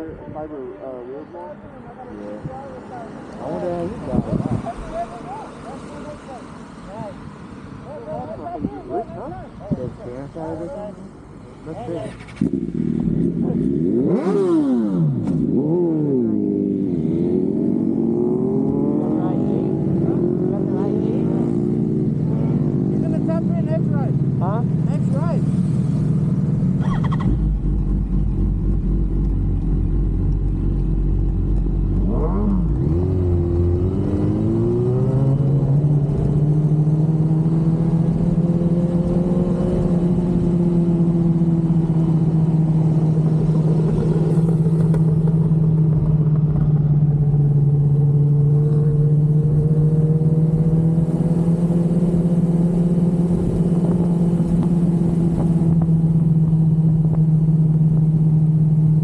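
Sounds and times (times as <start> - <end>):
motorcycle engine pulling away: 25.4 - 59.0.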